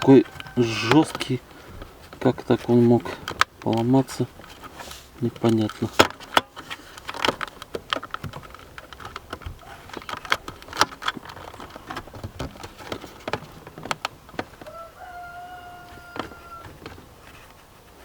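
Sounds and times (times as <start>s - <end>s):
metal parts clicking: 5.4s - 14.0s.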